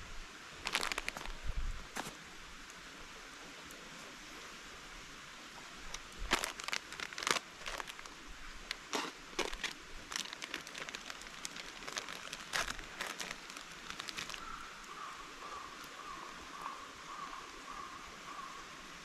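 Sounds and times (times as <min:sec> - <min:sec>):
dry material crunching and crackling: 0:00.6 - 0:02.1, 0:05.9 - 0:14.6.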